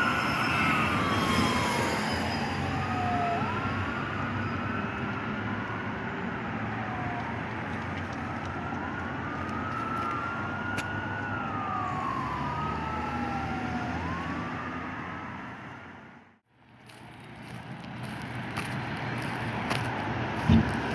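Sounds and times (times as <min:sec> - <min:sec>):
fire engine siren wailing: 0:00.0 - 0:16.4.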